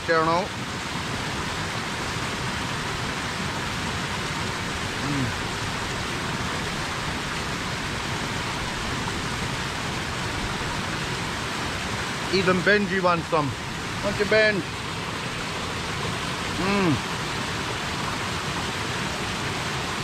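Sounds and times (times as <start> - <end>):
waterfall rushing: 0.0 - 20.0
person's low voice sound: 5.0 - 5.4, 16.5 - 17.1.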